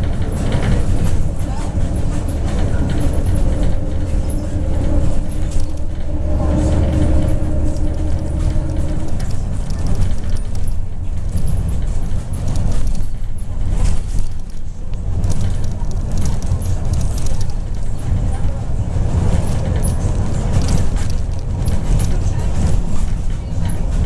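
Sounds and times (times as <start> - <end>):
bus engine and road rumble: 0.0 - 24.0
interior fittings rattling: 0.0 - 24.0
steady hum: 0.9 - 10.8.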